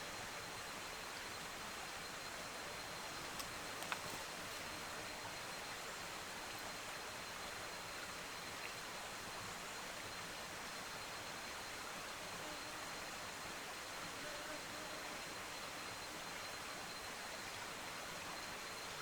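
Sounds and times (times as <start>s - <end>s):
faint outdoor hiss: 0.0s - 19.0s.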